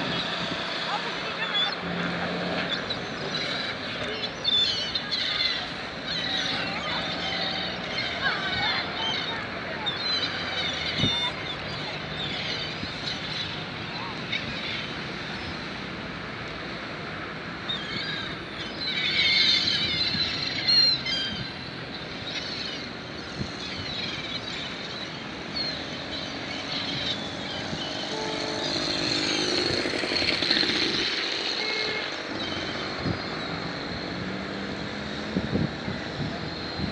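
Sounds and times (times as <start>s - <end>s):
seagulls squawking: 0.0s - 2.0s, 2.6s - 14.9s, 17.6s - 33.4s
motor vehicle passing: 26.0s - 36.9s.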